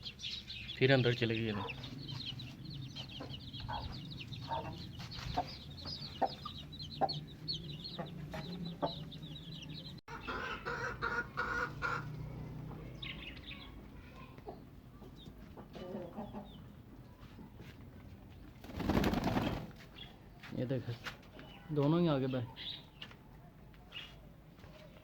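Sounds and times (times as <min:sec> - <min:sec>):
chicks peeping: 0:00.1 - 0:17.6
chickens clucking: 0:01.4 - 0:17.6.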